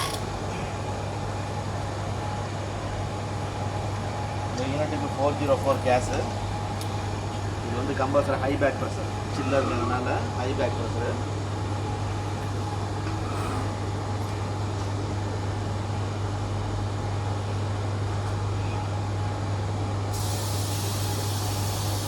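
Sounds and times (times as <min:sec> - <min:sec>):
refrigerant gas hissing: 0:20.1 - 0:22.0.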